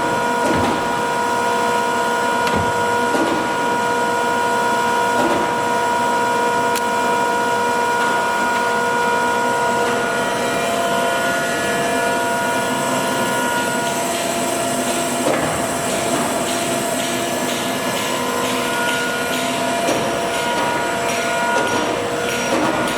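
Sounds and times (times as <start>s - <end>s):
lathe whining: 7.3s - 22.9s.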